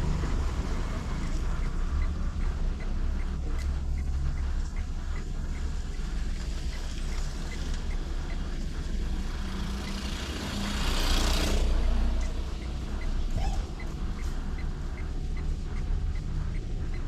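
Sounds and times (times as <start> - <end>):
passing traffic rush: 0.0 - 4.1, 6.1 - 17.0.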